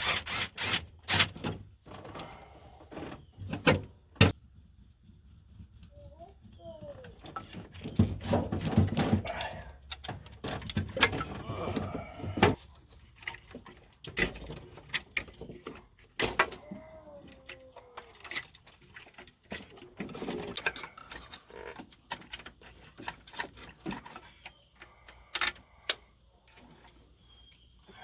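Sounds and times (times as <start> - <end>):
metal tools clinking and knocking: 13.1 - 25.9.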